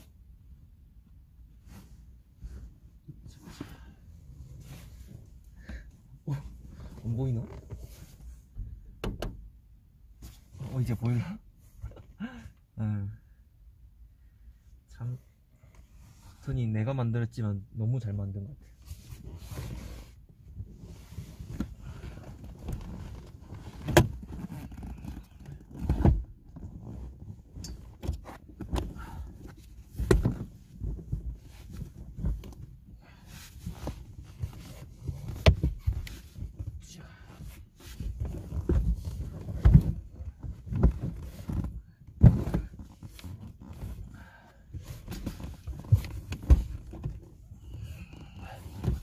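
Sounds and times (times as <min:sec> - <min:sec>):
gear knocking and rustling: 0:20.7 - 0:36.8, 0:37.7 - 0:49.0.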